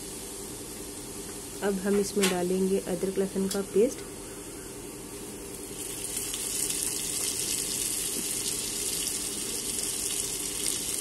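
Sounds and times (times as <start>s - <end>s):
vegetables sizzling in hot oil: 5.5s - 11.0s.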